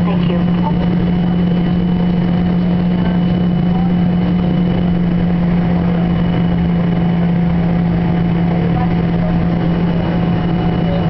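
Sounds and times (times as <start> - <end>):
aircraft cabin drone: 0.0 - 11.0.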